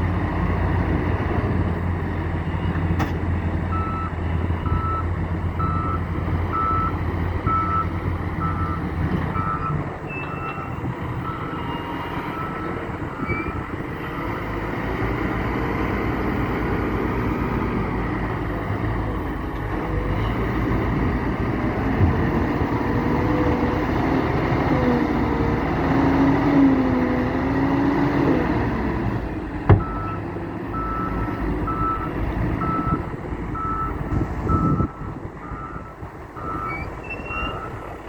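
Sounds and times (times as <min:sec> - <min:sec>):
diesel engine running: 0:00.0 - 0:38.0
reversing alarm beeping: 0:03.7 - 0:13.6, 0:29.8 - 0:33.0, 0:33.6 - 0:37.8.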